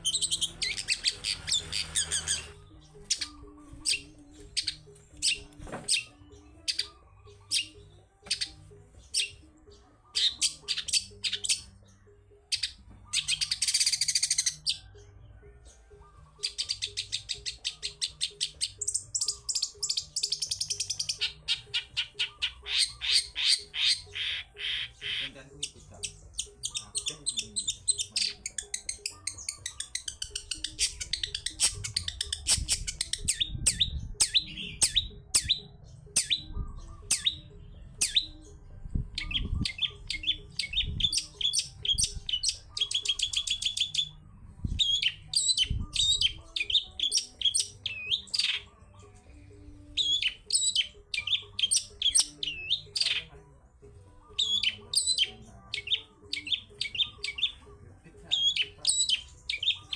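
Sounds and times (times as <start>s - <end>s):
bird singing chirps and whistles: 0.0s - 15.1s, 15.8s - 48.8s, 49.9s - 53.3s, 54.3s - 57.6s, 58.3s - 59.9s.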